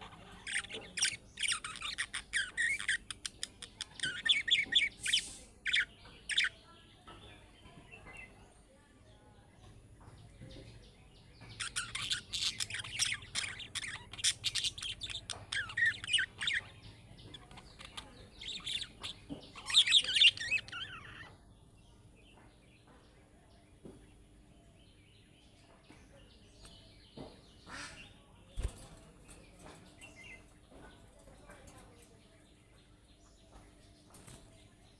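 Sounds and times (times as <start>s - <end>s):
budgerigar chirping and chattering: 0.0s - 6.6s, 11.4s - 21.6s, 26.6s - 32.0s.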